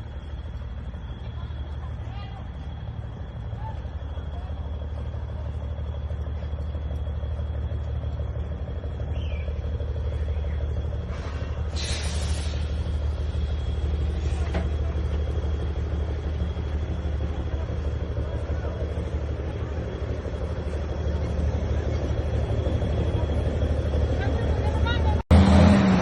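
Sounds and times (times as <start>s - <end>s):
diesel truck engine rumbling: 0.0s - 26.0s
air hiss: 11.1s - 13.0s.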